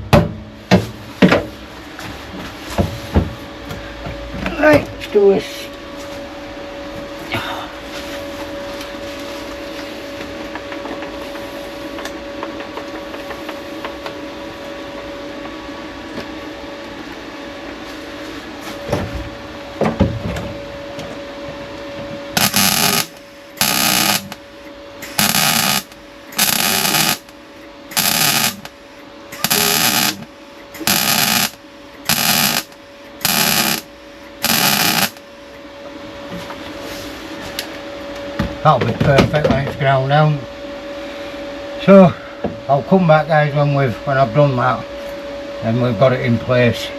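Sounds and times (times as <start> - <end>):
steady background hum: 0.0 - 46.9
welding crackle: 22.4 - 24.4, 25.0 - 28.7, 29.4 - 35.2.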